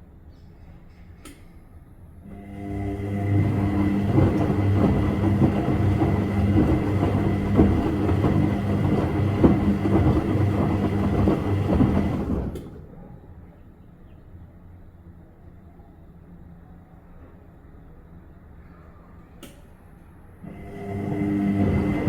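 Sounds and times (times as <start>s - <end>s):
washing machine running: 2.2s - 13.1s, 20.4s - 22.0s.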